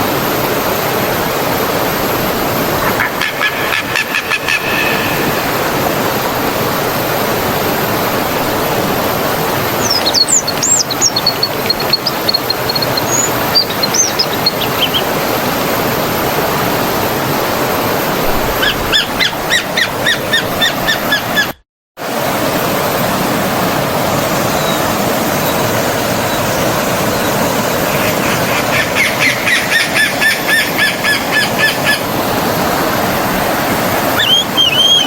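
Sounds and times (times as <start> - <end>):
stream water rushing: 0.0 - 21.4, 22.0 - 35.0
birds whistling: 9.6 - 15.4, 18.5 - 21.5, 26.2 - 32.0, 34.1 - 35.0
bird chirps: 9.7 - 15.2, 34.2 - 35.0.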